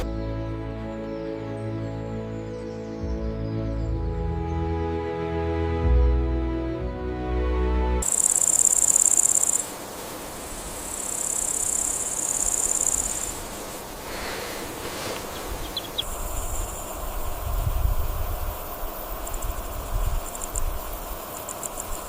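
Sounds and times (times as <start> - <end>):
insect trilling: 8.0 - 9.7, 10.4 - 22.0
steady background hiss: 8.0 - 22.0.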